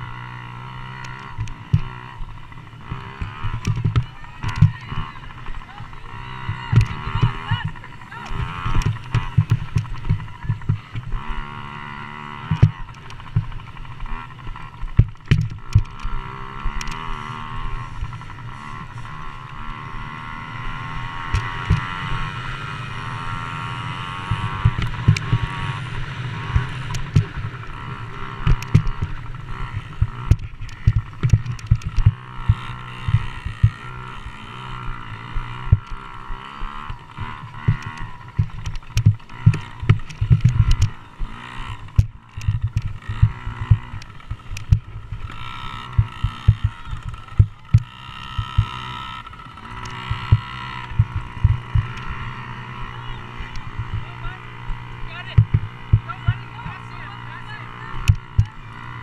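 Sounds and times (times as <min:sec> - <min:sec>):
dirt bike engines revving: 0:00.0 - 0:59.0
steady low rumble: 0:37.0 - 0:59.0
short knocks and thumps: 0:55.3 - 0:56.4.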